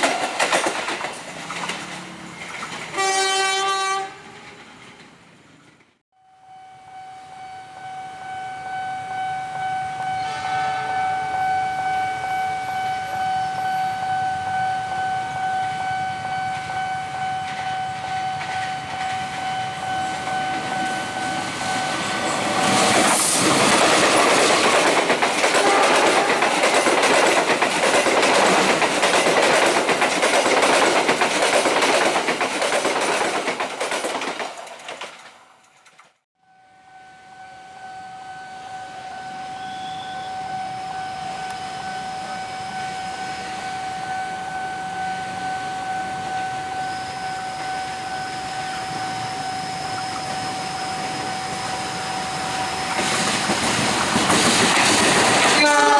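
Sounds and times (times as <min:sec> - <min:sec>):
wheels clattering over rail joints: 0:00.0 - 0:03.0, 0:22.0 - 0:36.2, 0:52.6 - 0:55.9
train rushing past: 0:00.0 - 0:05.9, 0:09.0 - 0:35.6, 0:38.8 - 0:55.9
high warning tone: 0:06.3 - 0:30.1, 0:36.7 - 0:53.6.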